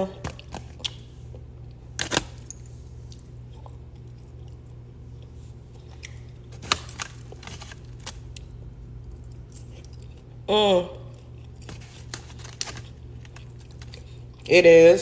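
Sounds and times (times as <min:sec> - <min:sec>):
low steady hum: 0:00.0 - 0:15.0
person chewing food: 0:00.3 - 0:02.0, 0:02.8 - 0:14.5.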